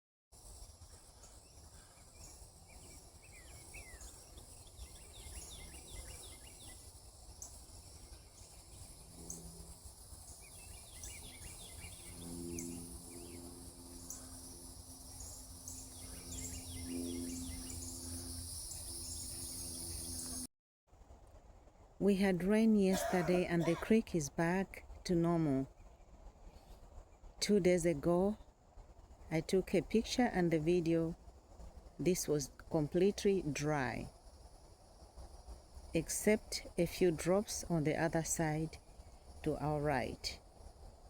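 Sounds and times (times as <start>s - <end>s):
insect ticking: 0.4s - 20.5s
insects buzzing: 0.4s - 20.5s, 27.8s - 41.0s
birds chirping: 0.9s - 20.5s, 22.8s - 24.0s.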